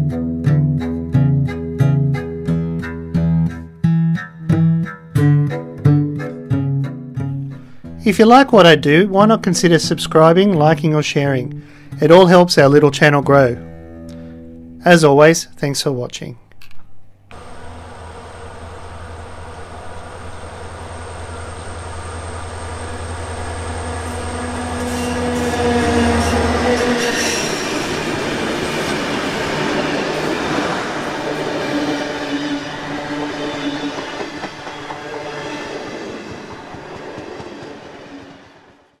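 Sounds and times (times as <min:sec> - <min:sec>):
steady low hum: 0:17.3 - 0:24.8
wheels rumbling on rail: 0:17.3 - 0:39.0.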